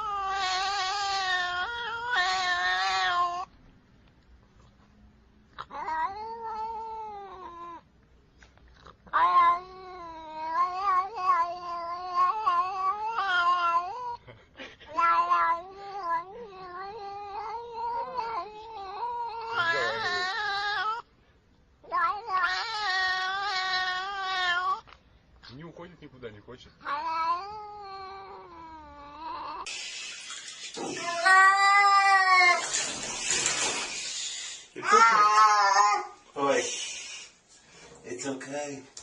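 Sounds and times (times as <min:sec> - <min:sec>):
cat yowling: 0:00.0 - 0:03.5, 0:05.6 - 0:07.9, 0:09.1 - 0:14.2, 0:14.9 - 0:21.1, 0:21.8 - 0:24.9, 0:26.8 - 0:29.7, 0:30.4 - 0:33.9, 0:34.6 - 0:36.2.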